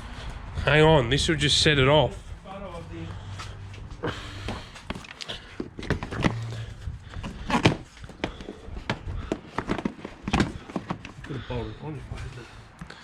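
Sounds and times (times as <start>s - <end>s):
knocks and clunks of parts: 4.4s - 11.3s.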